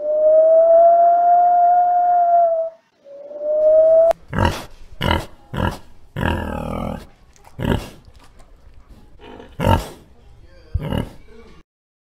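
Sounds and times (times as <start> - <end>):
pig grunting: 4.1 - 11.3.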